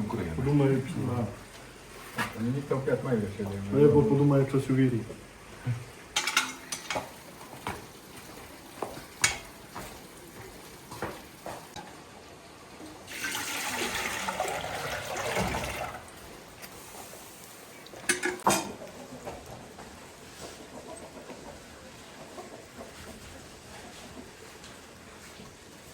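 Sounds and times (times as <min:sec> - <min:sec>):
water running: 0:00.0 - 0:11.9, 0:12.7 - 0:18.8
dishes and utensils clinking: 0:06.2 - 0:07.8, 0:09.2 - 0:09.9, 0:18.0 - 0:18.8.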